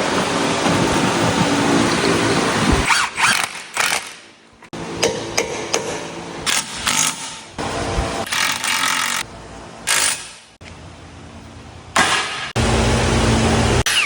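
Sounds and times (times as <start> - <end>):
ratchet or power tool bursts: 8.2 - 9.2, 9.8 - 10.5.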